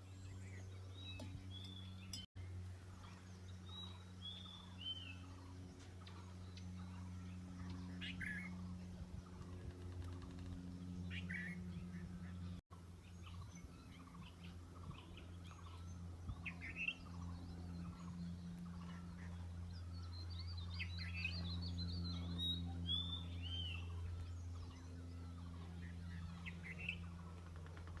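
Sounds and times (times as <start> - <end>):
steady low hum: 0.0 - 28.0
birds chirping and calling: 9.2 - 28.0.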